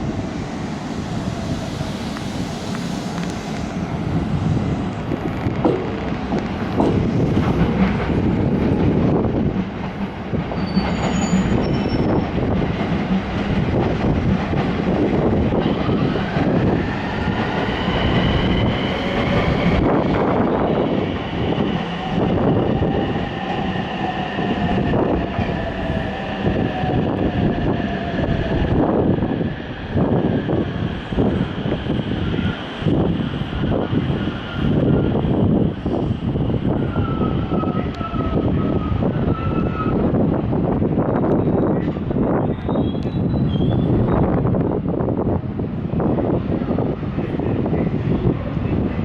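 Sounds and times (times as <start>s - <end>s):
high wheel squeal: 10.6s - 12.4s, 36.7s - 40.1s, 42.4s - 44.3s.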